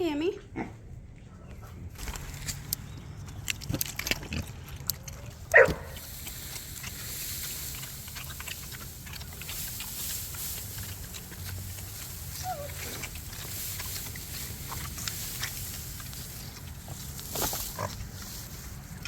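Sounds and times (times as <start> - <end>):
small noises and clicks: 2.0 - 17.6
farm animal call: 5.5 - 17.0.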